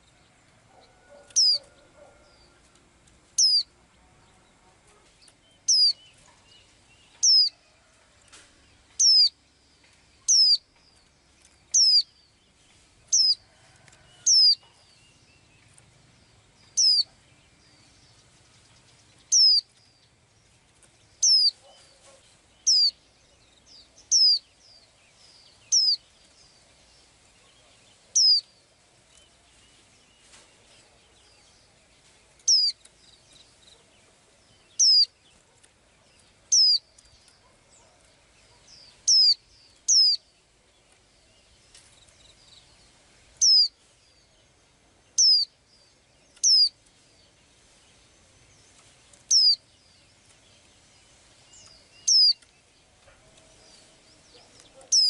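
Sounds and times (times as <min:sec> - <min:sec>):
small bird calling: 0:00.7 - 0:02.6, 0:03.4 - 0:03.7, 0:05.6 - 0:06.0, 0:07.1 - 0:07.6, 0:09.0 - 0:09.4, 0:10.2 - 0:10.7, 0:11.7 - 0:12.2, 0:13.1 - 0:13.4, 0:14.2 - 0:14.8, 0:16.7 - 0:17.2, 0:19.3 - 0:19.7, 0:21.2 - 0:23.0, 0:24.0 - 0:24.4, 0:25.7 - 0:26.0, 0:27.4 - 0:28.5, 0:32.4 - 0:32.9, 0:34.5 - 0:35.7, 0:36.5 - 0:40.3, 0:43.4 - 0:43.8, 0:45.2 - 0:45.6, 0:46.4 - 0:46.8, 0:49.2 - 0:49.7, 0:51.6 - 0:55.0.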